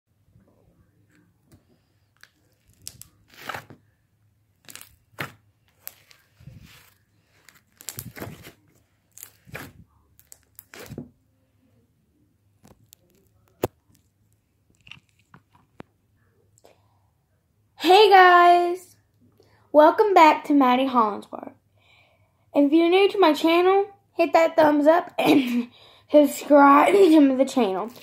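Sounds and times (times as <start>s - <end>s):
slime squishing and popping: 4.6s - 6.2s, 7.5s - 11.0s.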